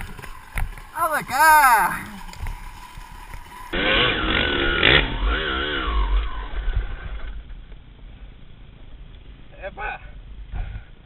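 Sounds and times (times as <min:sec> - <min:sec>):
dirt bike engine revving: 0:03.8 - 0:06.9.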